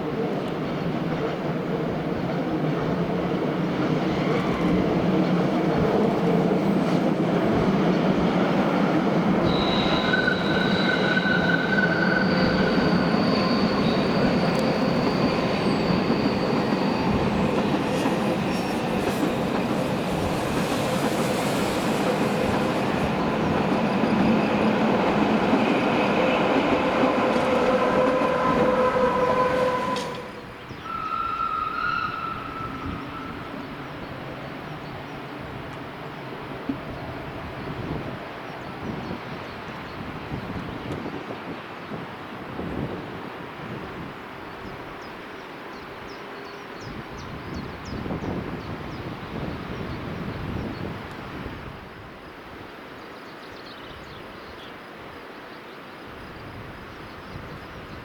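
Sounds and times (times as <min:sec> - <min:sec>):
train wheels rumbling on track: 0:00.0 - 0:44.4
high-pitched wheel squeal: 0:09.4 - 0:17.5, 0:27.3 - 0:33.5.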